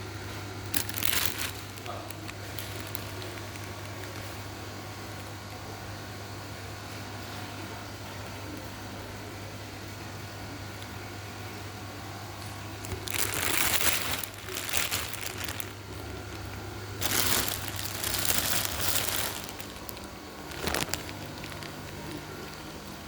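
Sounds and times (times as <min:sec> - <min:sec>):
steady low hum: 0:00.0 - 0:23.0
crinkling and rustling: 0:00.7 - 0:04.4, 0:12.4 - 0:23.0.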